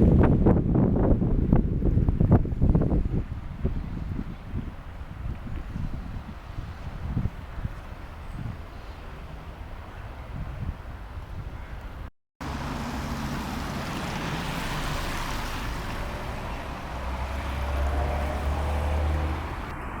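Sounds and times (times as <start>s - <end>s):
road noise: 0.0s - 20.0s
vehicle engine rumble: 11.8s - 20.0s.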